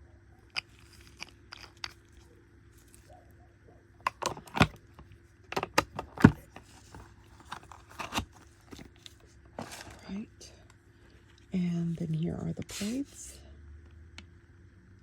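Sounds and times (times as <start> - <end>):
items clicking and knocking on table: 4.0 - 8.9.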